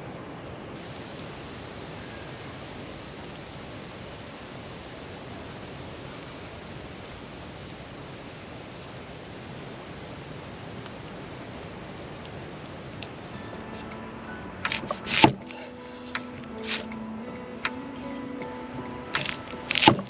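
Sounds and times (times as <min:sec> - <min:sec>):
campfire hissing: 0:00.0 - 0:20.0
fire crackles: 0:00.0 - 0:20.0.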